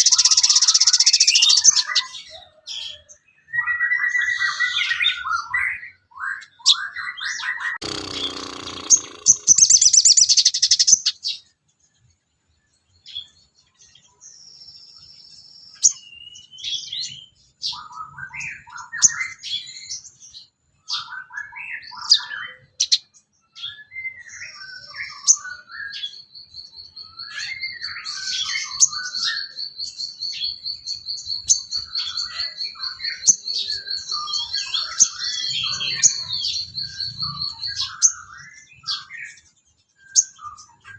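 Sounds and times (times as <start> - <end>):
fast high bird trill: 0.0 - 2.0, 7.8 - 11.1
loud harsh bird call: 0.0 - 2.2, 6.6 - 11.2, 31.3 - 39.4
songbird chirps and whistles: 0.0 - 2.2, 13.0 - 40.9.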